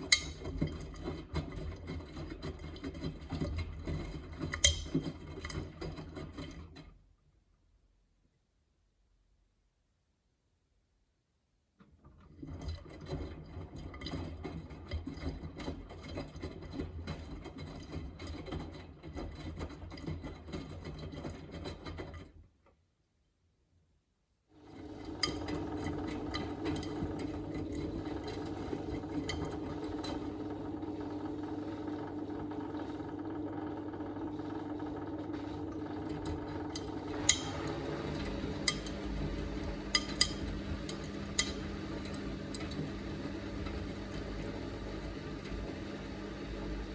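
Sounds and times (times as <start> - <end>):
drain pump hum: 24.6 - 46.9
washing machine drum turning: 24.7 - 46.0.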